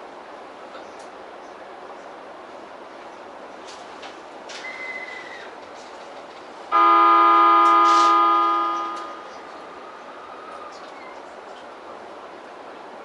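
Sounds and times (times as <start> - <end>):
train horn blast: 6.7 - 9.3.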